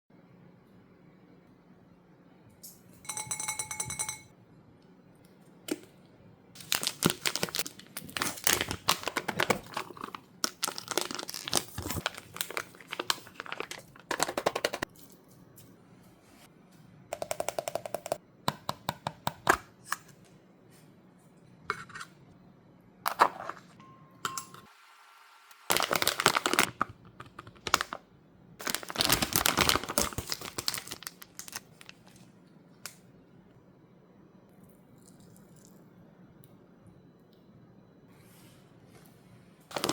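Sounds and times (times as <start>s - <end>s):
plastic packaging crinkling: 6.6s - 14.8s, 25.7s - 26.8s, 27.6s - 28.0s, 28.6s - 32.2s.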